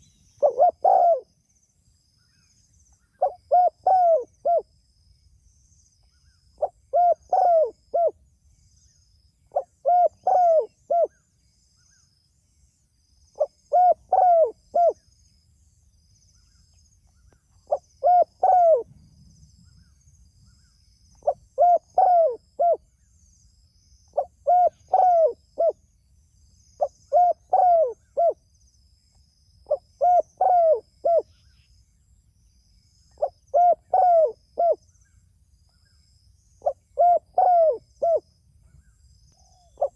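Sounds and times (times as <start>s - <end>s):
dove cooing: 0.0s - 1.3s, 3.2s - 4.7s, 6.6s - 8.2s, 9.5s - 11.1s, 13.4s - 15.0s, 17.7s - 18.9s, 21.2s - 22.8s, 24.2s - 25.8s, 26.8s - 28.4s, 29.7s - 31.3s, 33.2s - 34.8s, 36.6s - 38.2s.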